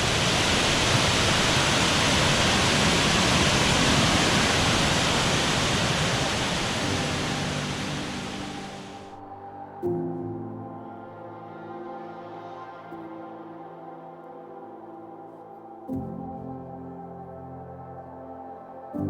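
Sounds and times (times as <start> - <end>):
waterfall roaring: 0.0 - 9.2
ambient music with gong tones: 3.6 - 19.0.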